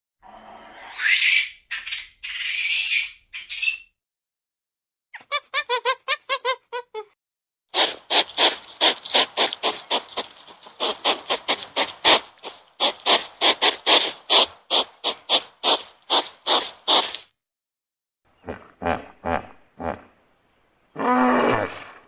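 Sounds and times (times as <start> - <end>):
hedgehog sniffing: 7.7 - 17.3.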